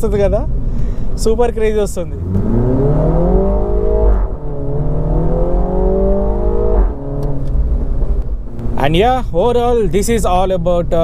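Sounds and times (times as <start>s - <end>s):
car engine accelerating hard: 1.9s - 9.2s.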